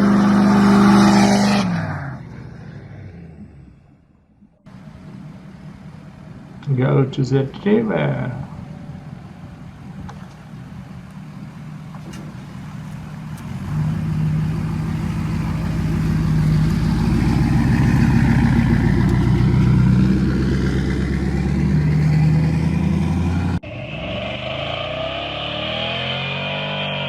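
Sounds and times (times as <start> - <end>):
truck engine running: 2.2 - 26.5.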